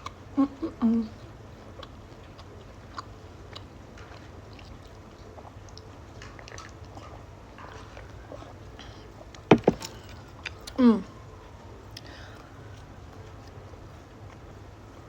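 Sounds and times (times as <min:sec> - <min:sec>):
steady low hum: 0:00.0 - 0:15.0
person chewing: 0:01.8 - 0:08.5.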